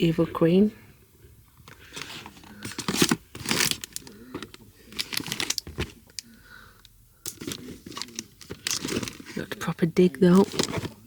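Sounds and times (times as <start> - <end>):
packaging crinkling and rustling: 1.7 - 6.3, 7.3 - 11.0.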